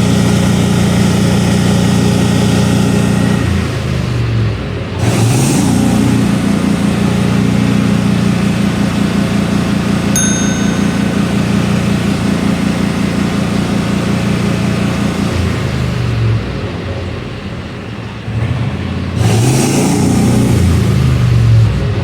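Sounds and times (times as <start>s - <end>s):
short metallic ding: 10.2s - 12.5s
utility vehicle engine revving: 18.2s - 22.0s.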